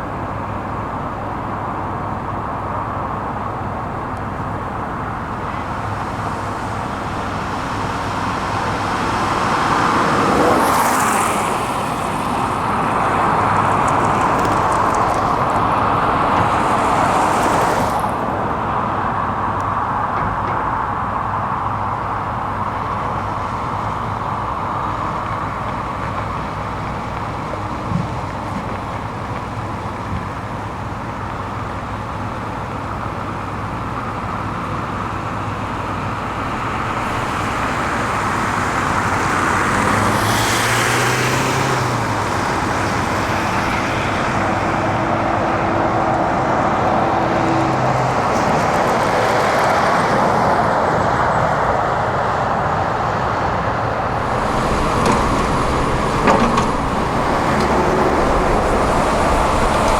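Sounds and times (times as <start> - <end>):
diesel construction machinery: 0.0 - 59.9
steady whine: 53.9 - 59.9.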